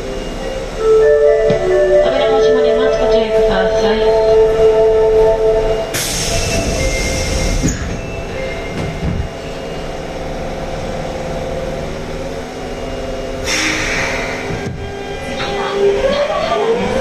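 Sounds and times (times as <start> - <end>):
subway train rumbling: 0.0 - 17.0
train door air hiss: 6.0 - 8.0, 13.4 - 14.8.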